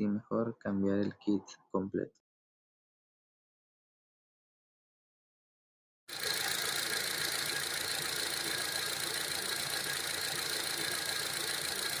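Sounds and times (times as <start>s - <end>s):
car engine idling: 6.1s - 12.0s.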